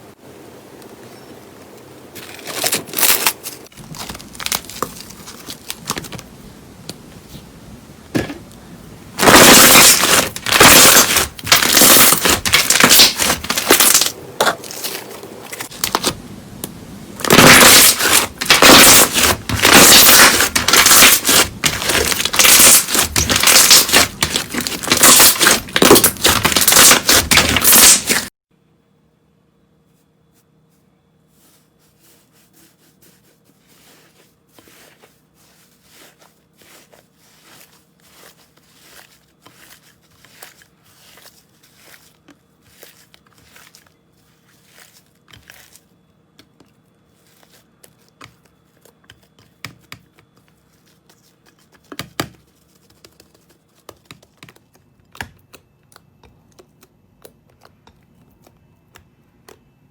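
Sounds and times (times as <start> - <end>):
slime squishing and popping: 17.2 - 28.3.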